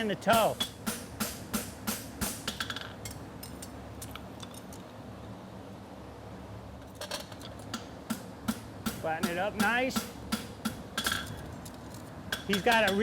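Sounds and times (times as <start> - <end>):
cooling fan hum: 0.0 - 13.0
hammer blows on horseshoe: 0.3 - 2.7.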